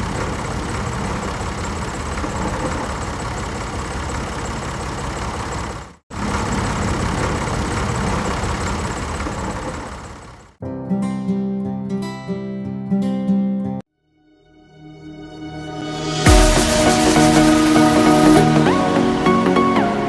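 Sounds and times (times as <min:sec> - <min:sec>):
engine running: 0:00.0 - 0:10.6, 0:15.5 - 0:20.0.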